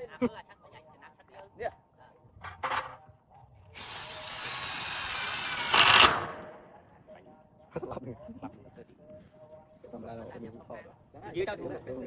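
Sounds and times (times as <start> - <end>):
loud harsh burst: 3.8 - 6.6
power tool motor whine: 3.8 - 6.6.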